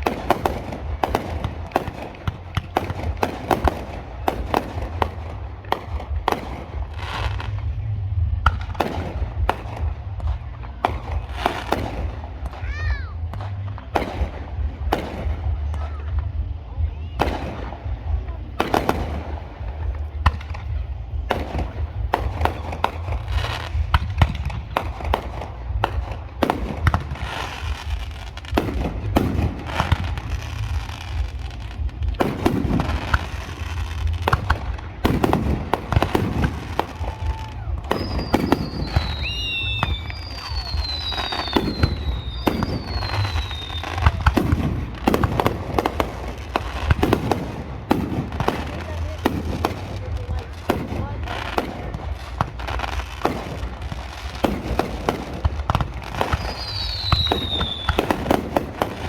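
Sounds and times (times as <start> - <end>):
fireworks bangs and crackles: 0.0 - 59.0
low rumble: 0.0 - 59.0
falling firework whistles: 36.9 - 44.3, 56.2 - 58.3.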